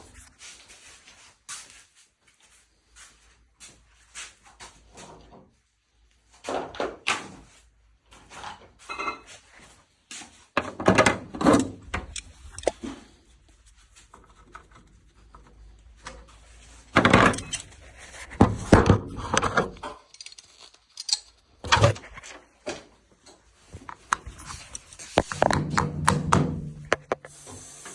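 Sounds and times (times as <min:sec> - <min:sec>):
hard objects thunking and clattering: 0:10.6 - 0:13.1, 0:16.9 - 0:17.7, 0:18.3 - 0:20.4, 0:25.2 - 0:27.2.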